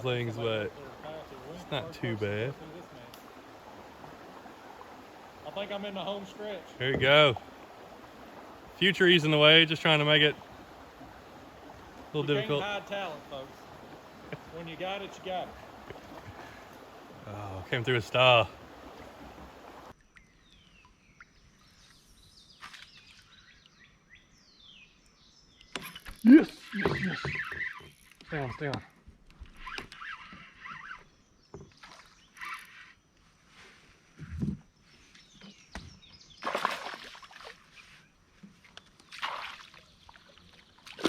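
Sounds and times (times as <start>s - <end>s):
rush of water-like noise: 0.0s - 20.0s
faint birdsong chirps and whistles: 19.9s - 28.6s, 29.5s - 36.6s
fish splashing in water: 36.4s - 37.7s, 39.1s - 41.0s.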